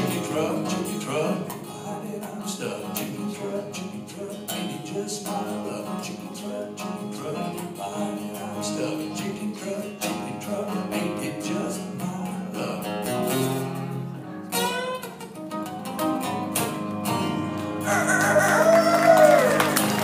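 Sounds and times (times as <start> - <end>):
person singing: 0.0 - 13.5
strummed acoustic guitar: 0.0 - 20.0.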